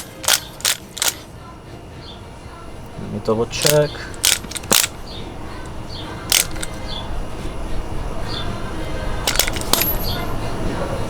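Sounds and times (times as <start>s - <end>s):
sharp clicks of tools: 0.0s - 1.3s, 3.6s - 5.0s, 6.3s - 6.9s, 9.3s - 10.0s
low background noise: 0.0s - 11.0s.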